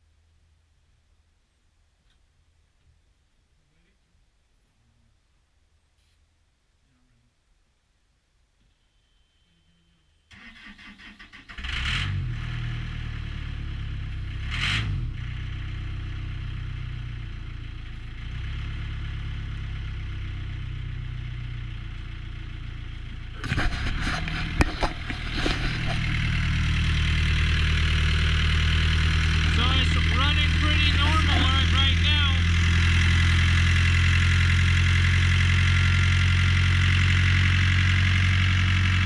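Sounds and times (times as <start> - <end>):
diesel engine starter cranking: 10.3 - 12.2
diesel engine running: 11.6 - 39.0
sharp knocks and rattles: 23.4 - 28.1.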